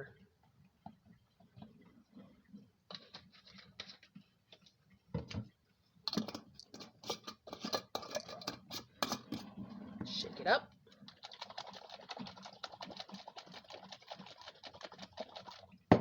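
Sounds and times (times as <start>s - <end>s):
clicks and scrapes: 6.1s - 9.5s
glass jar scraping and tapping: 6.2s - 9.5s.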